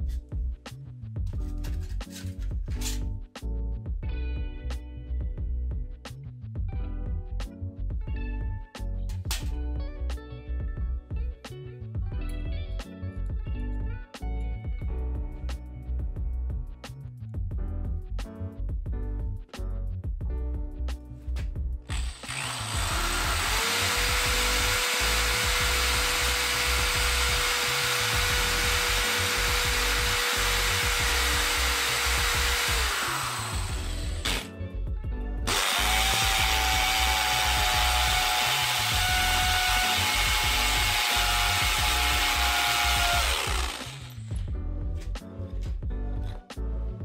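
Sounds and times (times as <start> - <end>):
drill bit grinding concrete: 21.9 - 34.5, 35.5 - 44.3
hammer drill whining: 21.9 - 34.5, 35.5 - 44.4.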